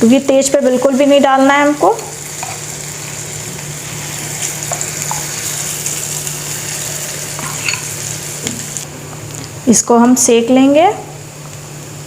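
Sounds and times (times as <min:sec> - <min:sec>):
hot oil sizzling: 0:00.0 - 0:09.8.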